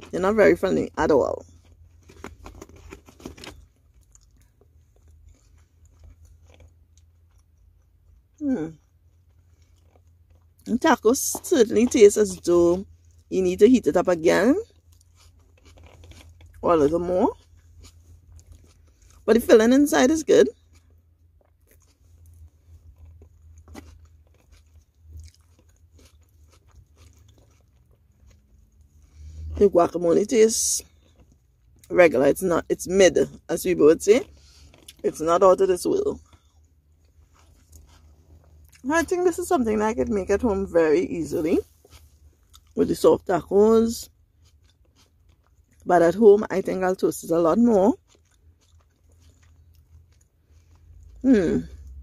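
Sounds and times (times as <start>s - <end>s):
low steady hum: 0.0s - 52.0s
person chewing with clicks: 1.4s - 10.7s, 14.7s - 16.6s, 20.5s - 29.0s, 36.2s - 38.8s, 44.1s - 45.9s, 47.9s - 51.2s
mouth chewing clicks and smacks: 20.5s - 29.0s, 47.9s - 51.2s.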